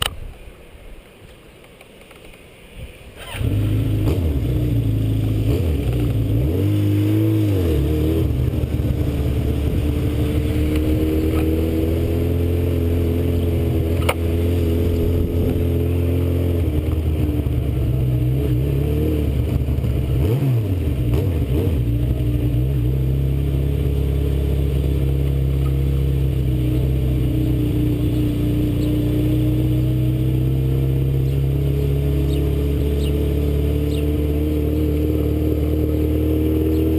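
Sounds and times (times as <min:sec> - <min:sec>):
sharp click: 0:00.0 - 0:00.4, 0:14.0 - 0:14.2
motorcycle engine revving: 0:03.2 - 0:36.9.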